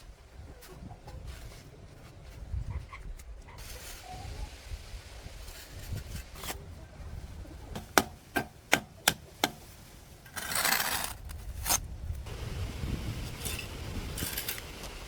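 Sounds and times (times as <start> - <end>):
scraping on a board: 10.3 - 11.8.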